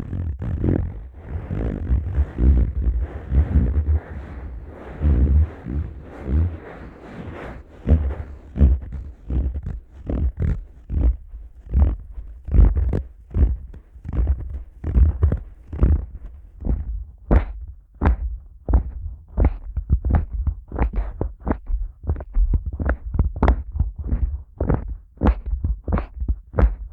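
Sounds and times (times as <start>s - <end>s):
palms rubbing microphone ears: 0.0s - 16.9s
fingers squeezing microphone ears: 0.0s - 26.9s.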